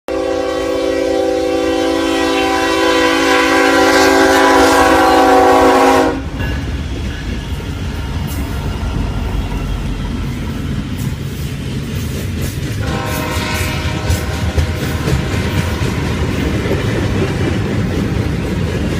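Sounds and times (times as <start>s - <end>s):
train air horn blast: 0.1s - 6.4s, 12.8s - 16.7s
train rumble and wheel clatter: 0.1s - 18.9s.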